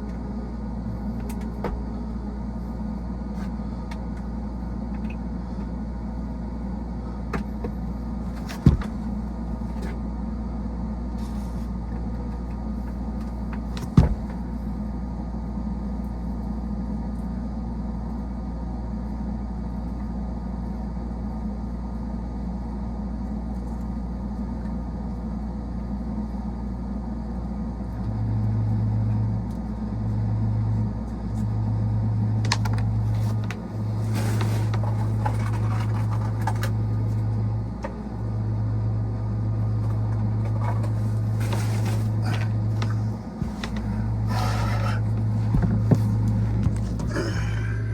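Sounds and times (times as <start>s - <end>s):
hvac equipment humming: 0.0s - 47.9s.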